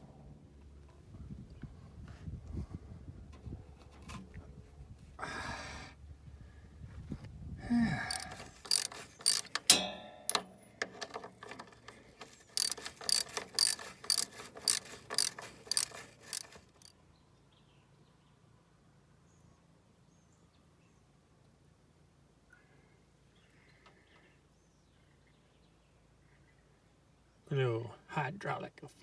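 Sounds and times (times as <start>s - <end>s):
ratchet wrench clicking: 8.0s - 16.9s
parts rustling and scraping: 8.1s - 16.9s.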